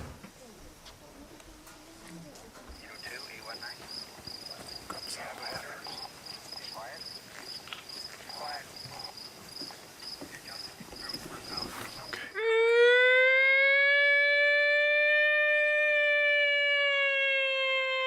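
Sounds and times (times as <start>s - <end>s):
crickets chirping: 0.0s - 12.5s
faint murmuring voices: 8.3s - 12.4s.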